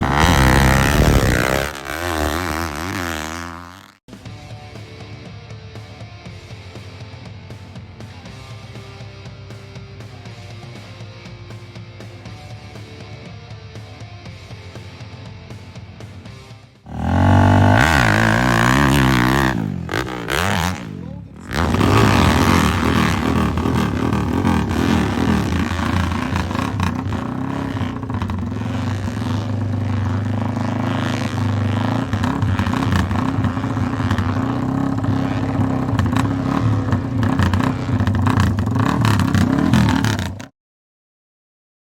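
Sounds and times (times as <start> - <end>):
dirt bike engine revving: 0.0 - 4.0, 16.9 - 40.5.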